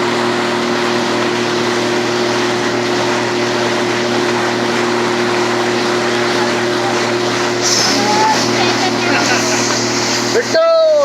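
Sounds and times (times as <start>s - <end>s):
motorboat engine droning: 0.0s - 11.0s
continuous rushing noise: 3.8s - 11.0s.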